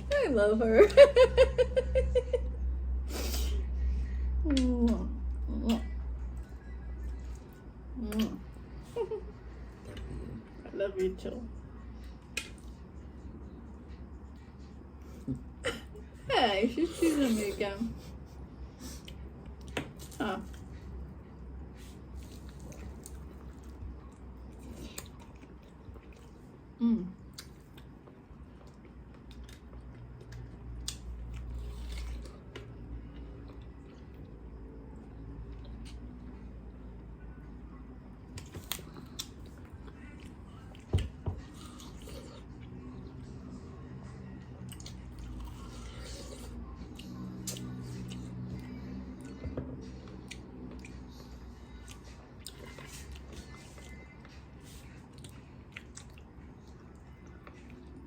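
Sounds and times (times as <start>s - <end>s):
chewing and biting food: 21.9s - 26.6s, 27.3s - 34.4s, 38.4s - 43.1s, 44.6s - 58.0s
wet chewing: 55.1s - 57.9s.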